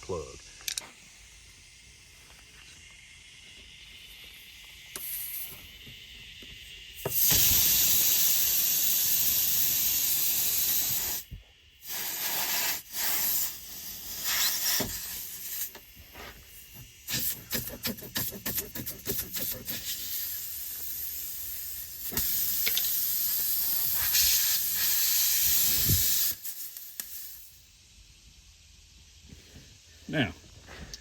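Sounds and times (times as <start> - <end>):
air hissing out of tire: 0.8 - 30.0.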